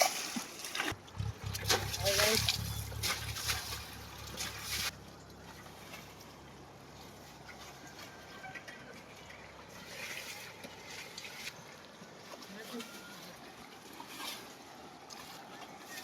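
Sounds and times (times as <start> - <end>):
water spraying on a tractor: 0.0 - 11.6
water trickling and dripping: 0.0 - 12.7
low steady hum: 0.9 - 11.4.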